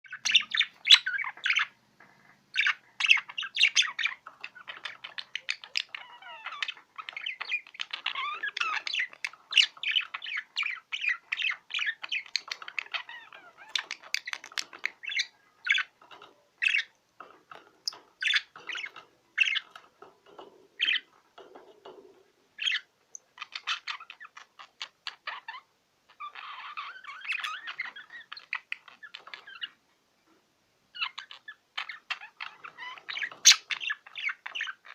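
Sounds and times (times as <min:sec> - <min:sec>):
budgerigar warbling and chattering: 0:00.1 - 0:22.0, 0:22.6 - 0:29.8, 0:31.0 - 0:34.9.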